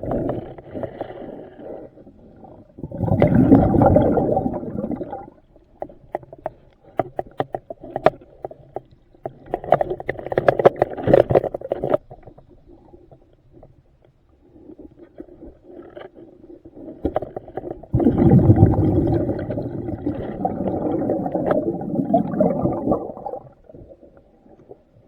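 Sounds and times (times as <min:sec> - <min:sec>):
diver's regulator bubbles: 0:02.2 - 0:05.5, 0:15.4 - 0:25.0.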